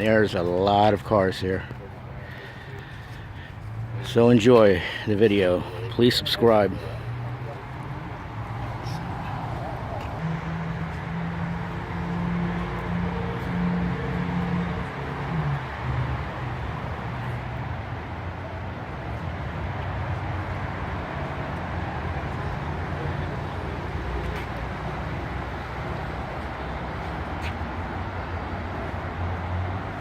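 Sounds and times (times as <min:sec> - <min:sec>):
faint voices: 0:00.0 - 0:10.3.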